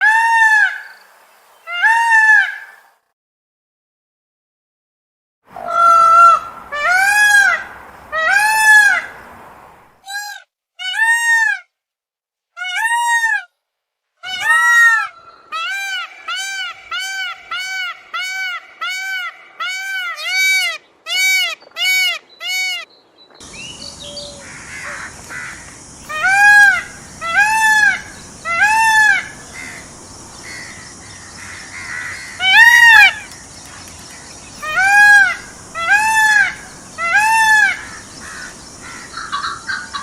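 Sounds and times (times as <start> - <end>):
hissy background noise: 0.7 - 3.0, 5.5 - 10.0, 15.2 - 40.0
peafowl honking calls: 5.6 - 9.4, 14.2 - 40.0.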